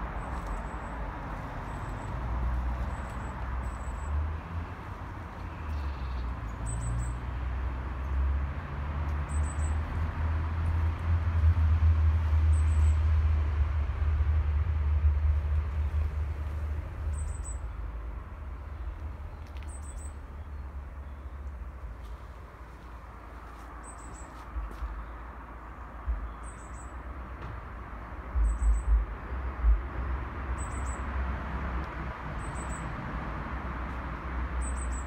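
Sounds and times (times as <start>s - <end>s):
small bird chirping: 19.3s - 21.6s, 28.4s - 29.0s, 30.6s - 31.0s
wind rumble on microphone: 25.9s - 34.4s.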